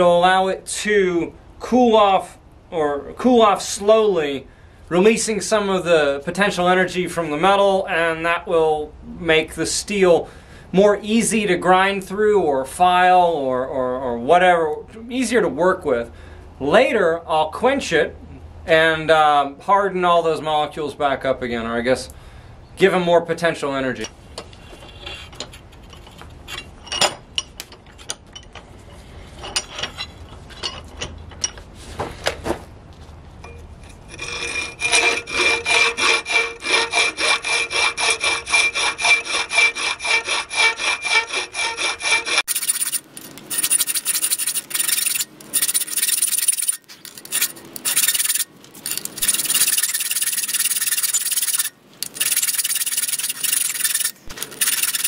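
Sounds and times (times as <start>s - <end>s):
file rasping on metal: 34.0s - 55.0s.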